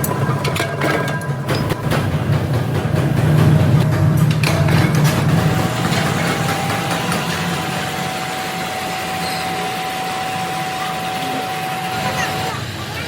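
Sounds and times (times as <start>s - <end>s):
constant machine whine: 0.0s - 13.0s
factory machinery running: 0.0s - 13.0s.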